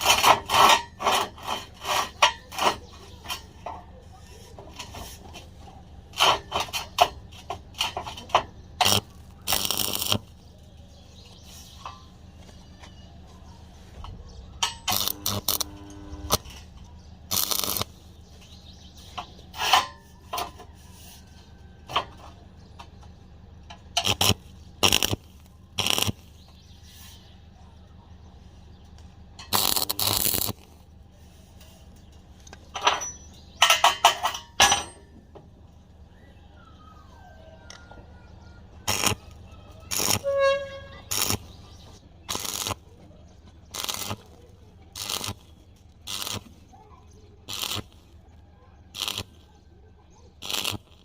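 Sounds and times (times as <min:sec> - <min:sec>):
metal tools scraping iron pipe: 0:00.0 - 0:03.9, 0:06.1 - 0:10.2, 0:14.6 - 0:16.7, 0:17.3 - 0:17.9, 0:19.0 - 0:22.3, 0:23.9 - 0:26.1, 0:29.4 - 0:30.7, 0:31.6 - 0:35.2, 0:38.9 - 0:42.8, 0:43.7 - 0:44.3, 0:45.0 - 0:45.5, 0:46.1 - 0:46.5, 0:47.5 - 0:48.1, 0:49.0 - 0:49.3, 0:50.4 - 0:51.0
metallic ringing or squeal: 0:32.8 - 0:33.4, 0:38.9 - 0:41.4.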